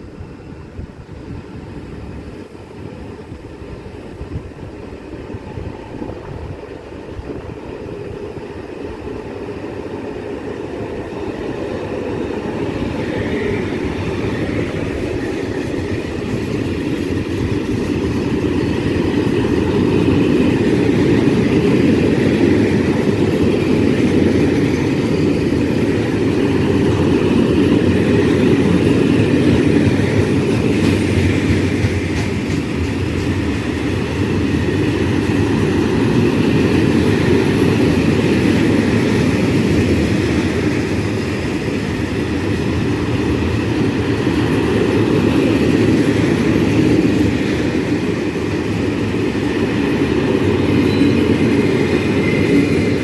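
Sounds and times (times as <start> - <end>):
train rumble and wheel noise: 0.0 - 53.0.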